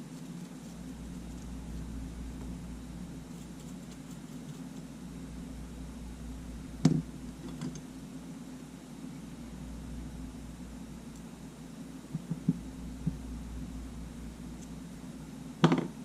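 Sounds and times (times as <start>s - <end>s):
steady low hum: 0.0s - 16.0s
tool knocking on workbench: 15.6s - 15.9s.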